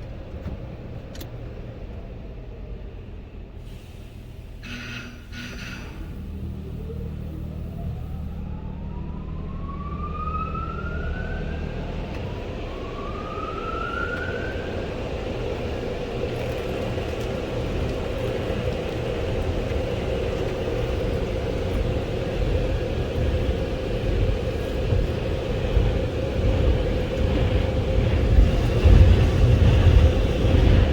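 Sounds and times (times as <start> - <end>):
dryer blower motors whining: 0.0 - 30.9
low rumble: 5.9 - 30.9.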